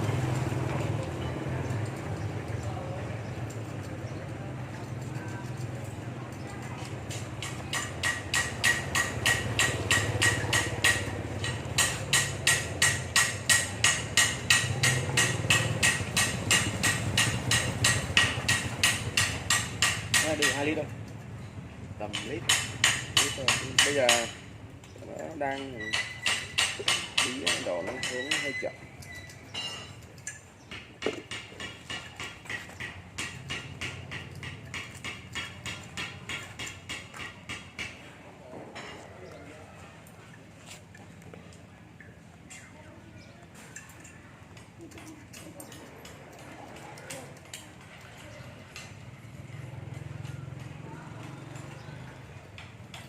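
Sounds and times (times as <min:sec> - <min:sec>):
rapid sharp tapping knocks: 0:07.0 - 0:20.8, 0:22.1 - 0:24.5, 0:25.8 - 0:28.6, 0:30.7 - 0:38.0.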